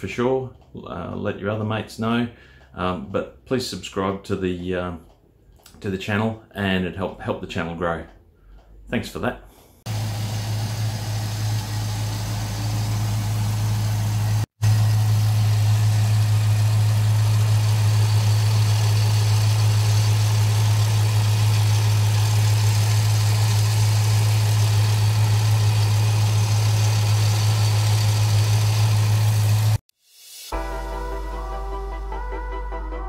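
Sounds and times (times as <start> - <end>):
air conditioning compressor running: 9.9 - 29.8
car engine idling: 9.9 - 29.8.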